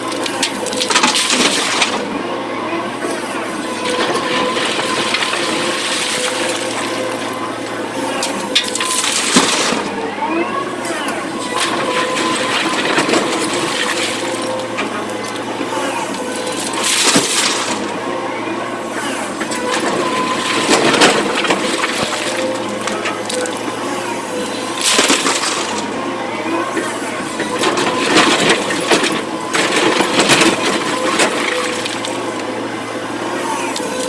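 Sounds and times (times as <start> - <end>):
excavator diesel engine: 0.0 - 34.0.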